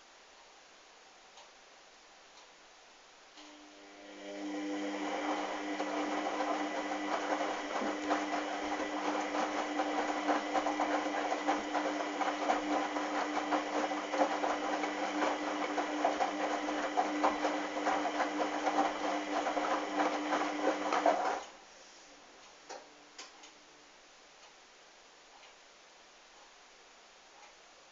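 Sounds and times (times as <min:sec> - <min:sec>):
washing machine motor hum: 0:03.5 - 0:21.5.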